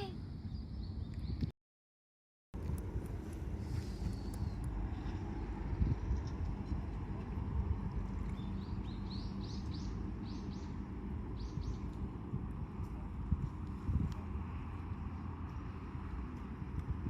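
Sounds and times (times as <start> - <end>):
steady low rumble: 2.6 - 17.0
bird chirping: 8.3 - 10.8.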